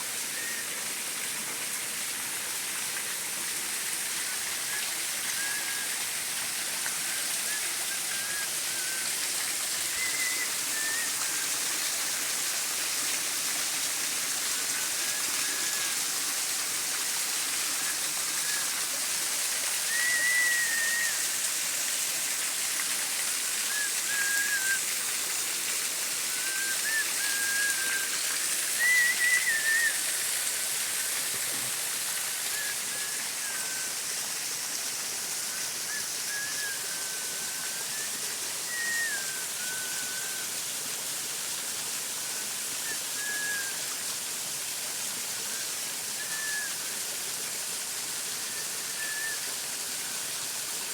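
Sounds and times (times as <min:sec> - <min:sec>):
rushing water hiss: 0:00.0 - 0:50.9
wavering chirping calls: 0:26.3 - 0:30.0, 0:36.0 - 0:40.4.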